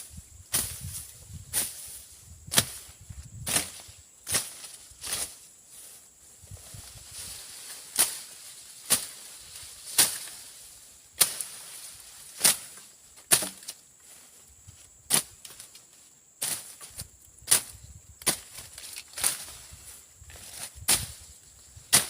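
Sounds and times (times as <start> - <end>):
blade slashing through brush: 3.5 - 5.4, 7.8 - 10.6, 11.2 - 13.8, 17.5 - 19.6, 20.3 - 21.2.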